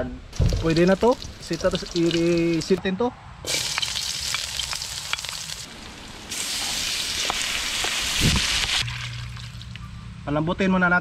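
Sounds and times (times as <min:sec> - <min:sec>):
onion and garlic sizzling in oil: 0:00.3 - 0:02.8, 0:03.5 - 0:08.9
meat thumping into pan: 0:00.4 - 0:02.7.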